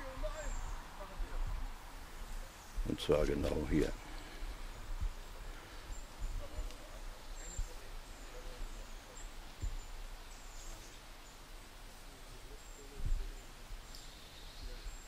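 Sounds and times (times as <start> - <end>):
low thumps on microphone: 9.6 - 9.9, 13.0 - 13.3.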